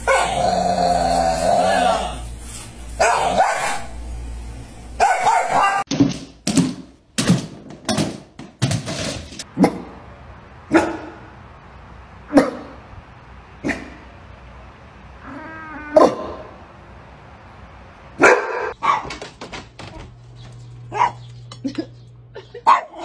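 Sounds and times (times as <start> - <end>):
dog barking: 0.0 - 0.4, 3.0 - 3.9, 5.0 - 5.8, 10.7 - 11.3, 12.3 - 12.8, 18.2 - 19.2, 20.9 - 21.3, 22.6 - 23.0.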